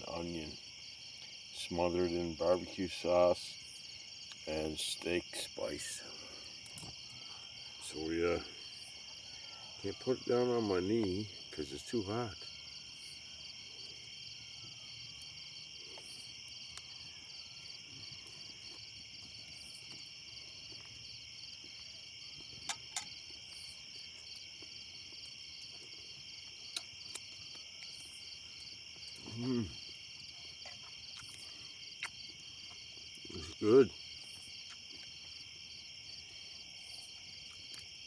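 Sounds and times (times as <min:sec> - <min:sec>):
crickets and insects chirping: 0:00.0 - 0:38.0
person humming: 0:29.3 - 0:29.8.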